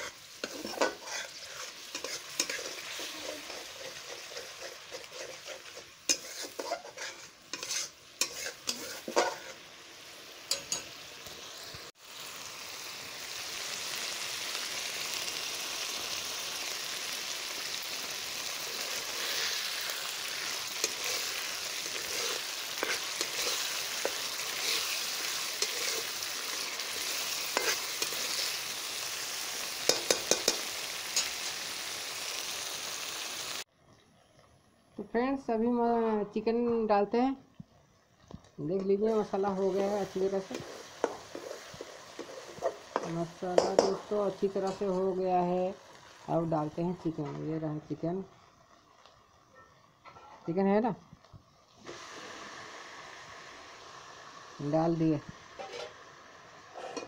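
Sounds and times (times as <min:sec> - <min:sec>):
spoon scraping a pan: 0:00.0 - 0:09.7, 0:10.5 - 0:11.0, 0:18.6 - 0:31.6, 0:38.8 - 0:45.0, 0:49.6 - 0:50.6, 0:55.6 - 0:56.0, 0:56.7 - 0:57.0
frying sizzle: 0:00.0 - 0:57.0.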